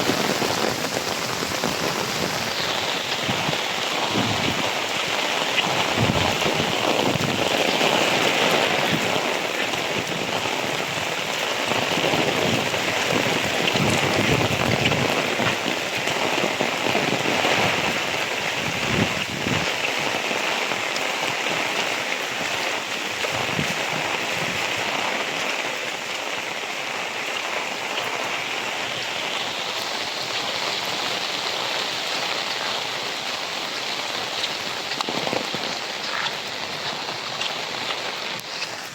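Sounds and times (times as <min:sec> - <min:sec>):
heavy rain pattering: 0:00.0 - 0:38.9.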